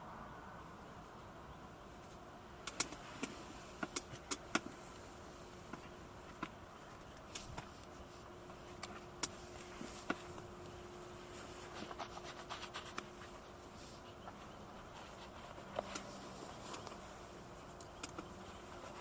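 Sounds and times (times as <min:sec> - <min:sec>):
faint steady hum: 0:00.0 - 0:19.0
rustling: 0:02.0 - 0:19.0
light clicks and ticks: 0:14.1 - 0:19.0.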